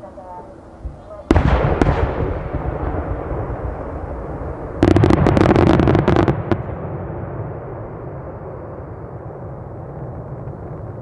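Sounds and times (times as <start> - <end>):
firework rumble: 0.0 - 11.0
firework cracks: 1.3 - 8.6.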